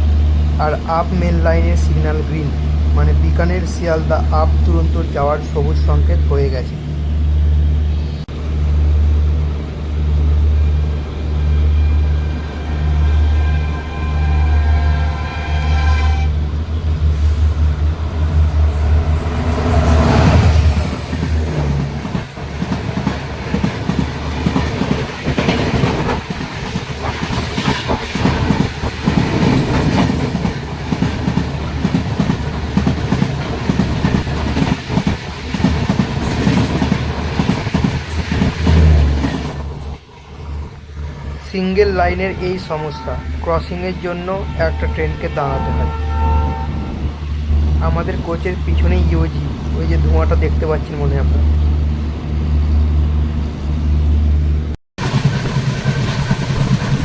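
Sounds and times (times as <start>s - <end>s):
locomotive rumbling past: 0.0s - 57.0s
locomotive horn blast: 11.4s - 20.7s, 42.6s - 47.2s
train wheels clickety-clack: 17.0s - 40.0s, 55.0s - 57.0s.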